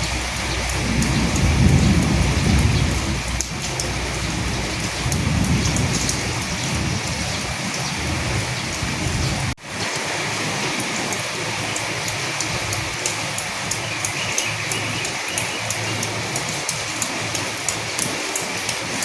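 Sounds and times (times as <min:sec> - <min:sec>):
low rolling thunder: 0:00.0 - 0:09.6
rain pattering: 0:00.0 - 0:19.0.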